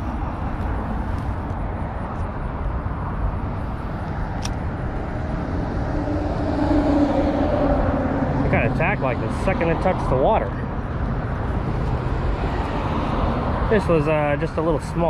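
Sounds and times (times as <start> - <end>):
highway traffic rumble: 0.0 - 15.0
passing vehicle engine hum: 0.0 - 15.0
sharp click: 4.4 - 4.6.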